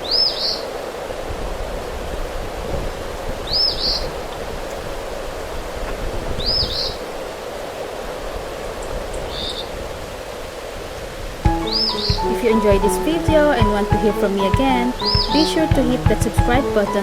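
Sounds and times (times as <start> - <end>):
rain: 0.0 - 12.2
wind: 0.0 - 13.6
bird two-note chirp: 11.5 - 17.0.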